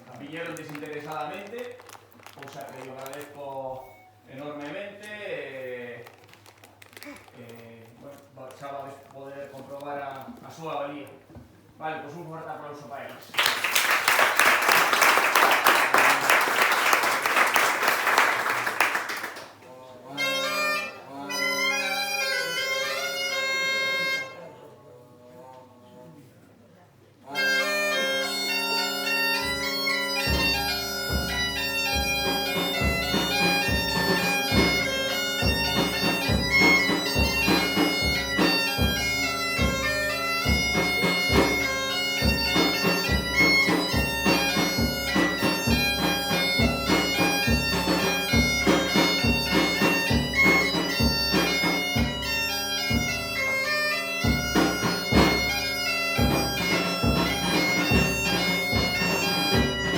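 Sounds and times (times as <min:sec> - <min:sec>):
bagpipe playing a tune: 0:20.1 - 0:24.6, 0:27.3 - 0:59.9.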